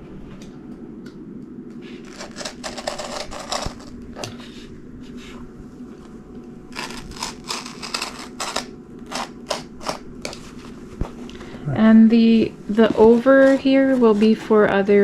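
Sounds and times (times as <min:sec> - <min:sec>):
steady low hum: 0:00.0 - 0:15.0
scratchy rasping strokes: 0:01.8 - 0:05.4, 0:06.7 - 0:10.7, 0:12.7 - 0:14.6.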